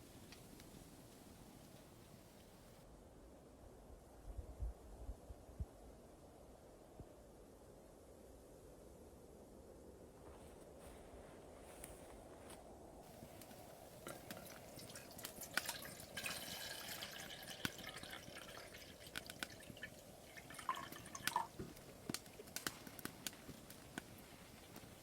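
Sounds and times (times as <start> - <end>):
low steady hiss: 0.0 - 25.0
liquid dripping and trickling: 14.0 - 22.7.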